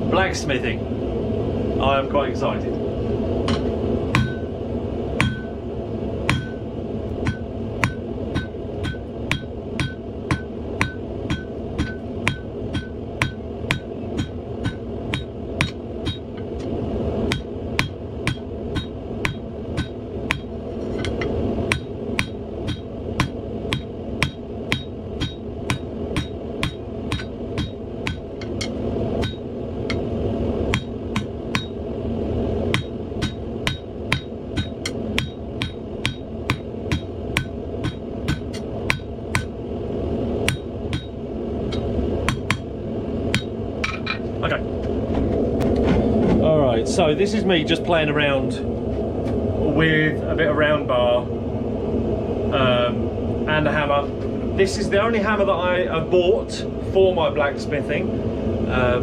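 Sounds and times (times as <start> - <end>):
gas forge burner rushing: 0.0 - 59.0
hammer striking steel on anvil: 3.5 - 4.5, 5.2 - 5.6, 6.3 - 6.6, 7.2 - 16.7, 17.3 - 30.1, 30.7 - 31.8, 32.7 - 39.6, 40.4 - 42.7, 43.3 - 44.2.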